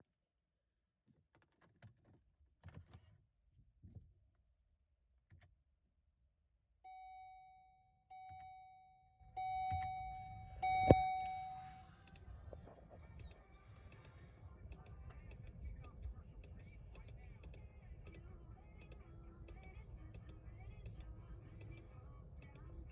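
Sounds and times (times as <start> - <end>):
car dashboard chime: 6.9 - 11.9
low hum: 9.3 - 14.6.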